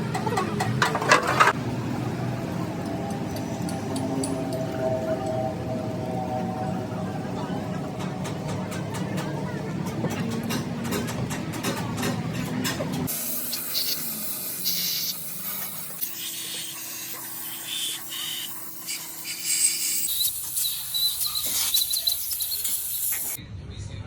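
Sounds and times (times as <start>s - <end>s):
high whine: 1.6s - 8.9s
low hum: 1.6s - 9.9s
hissing spray: 13.1s - 23.4s.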